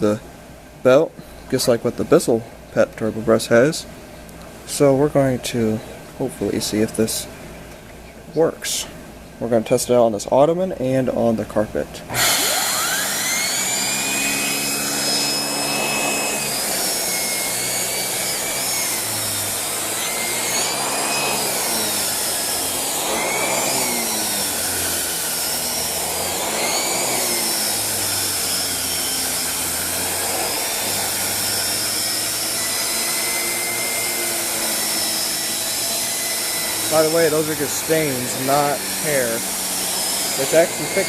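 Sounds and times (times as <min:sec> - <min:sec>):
vacuum cleaner whining: 0:12.1 - 0:41.0.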